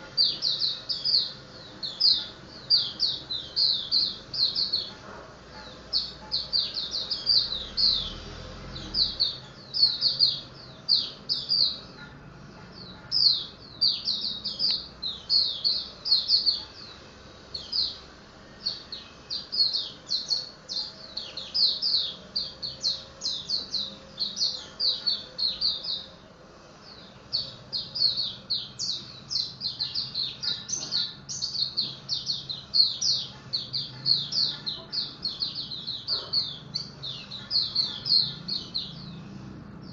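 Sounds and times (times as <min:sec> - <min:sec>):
bird singing high thin chirps: 0:00.0 - 0:05.0, 0:12.8 - 0:26.1, 0:26.9 - 0:39.2.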